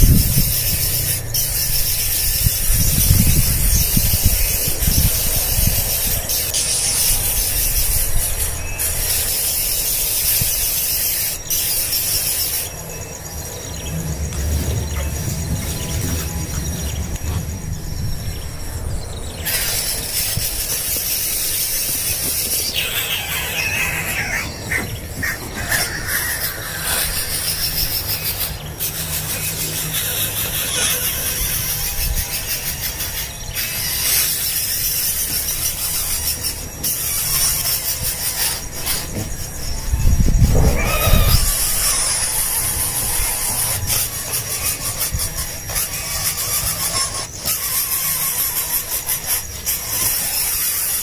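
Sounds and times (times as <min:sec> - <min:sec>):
fledgling birds squealing: 0:00.0 - 0:51.0
low steady rumble: 0:12.8 - 0:19.4.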